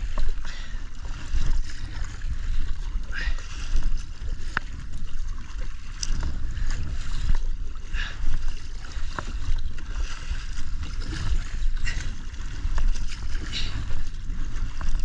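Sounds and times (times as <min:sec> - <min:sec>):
paddle strokes splashing water: 0:00.0 - 0:15.0
wind rumble on microphone: 0:00.0 - 0:15.0.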